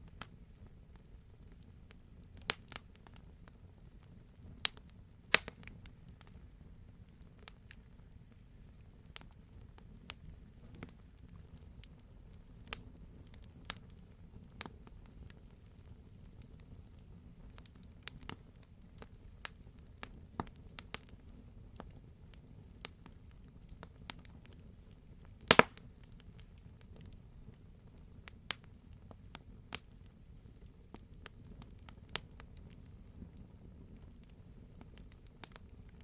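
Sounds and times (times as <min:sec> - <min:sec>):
campfire wood crackling: 0:00.0 - 0:36.0
low rumble of flames: 0:00.0 - 0:36.0
loud pop of burning wood: 0:04.6 - 0:06.3, 0:25.4 - 0:26.0.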